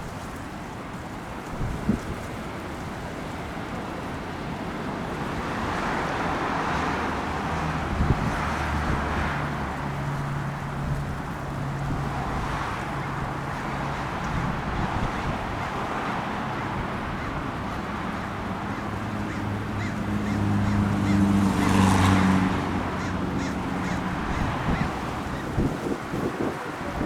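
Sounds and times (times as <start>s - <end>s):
road traffic passing: 0.0s - 27.0s
low vehicle engine hum: 7.0s - 27.0s.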